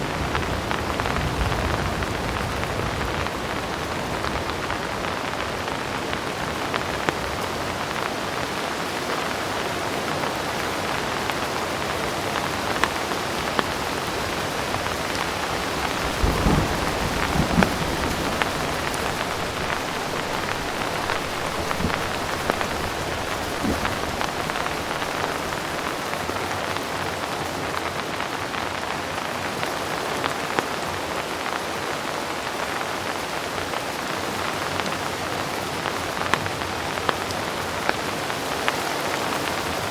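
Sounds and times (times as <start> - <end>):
heavy rain: 0.0 - 39.9
distant thunder rumble: 14.5 - 26.4.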